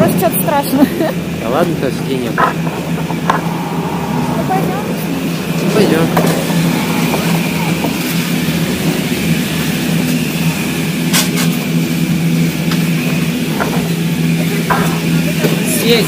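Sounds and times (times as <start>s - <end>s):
ski lift machinery humming: 0.0s - 16.0s.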